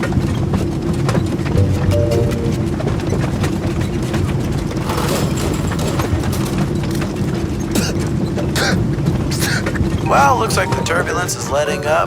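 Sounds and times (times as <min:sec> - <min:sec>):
rattling and clattering: 0:03.5 - 0:08.4.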